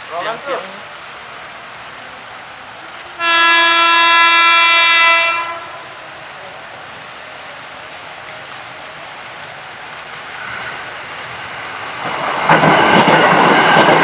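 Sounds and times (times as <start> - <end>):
heavy rain hissing: 0.0 - 14.0
train horn blast: 3.2 - 6.2.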